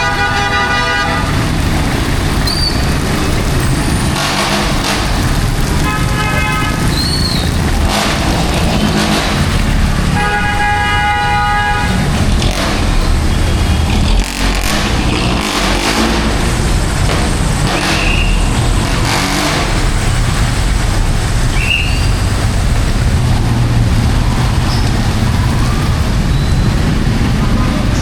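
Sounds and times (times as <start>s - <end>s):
car horn honks: 0.0s - 1.4s, 5.8s - 7.0s, 10.1s - 12.1s
engine rumble: 0.0s - 28.0s
heavy rain hiss: 0.3s - 10.2s.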